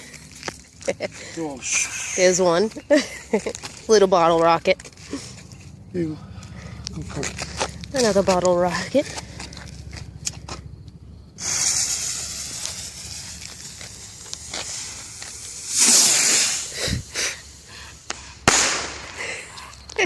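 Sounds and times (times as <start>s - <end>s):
fuse hissing: 11.3s - 19.3s
rocket whoosh: 11.4s - 19.3s
sharp pops: 11.4s - 19.3s.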